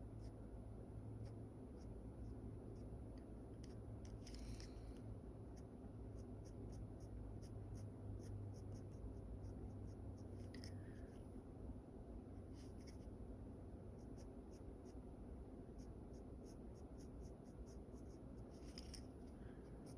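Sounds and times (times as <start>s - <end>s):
pencil scratching on paper: 15.8s - 19.9s.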